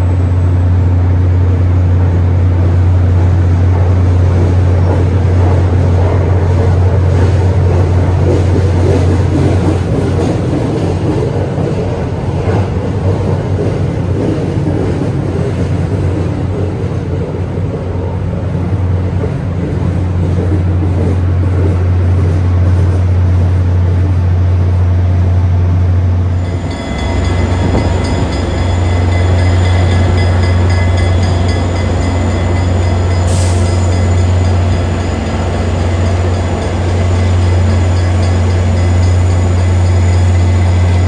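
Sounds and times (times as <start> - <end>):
diesel locomotive drone: 0.0 - 41.0
high steady tones: 26.3 - 41.0.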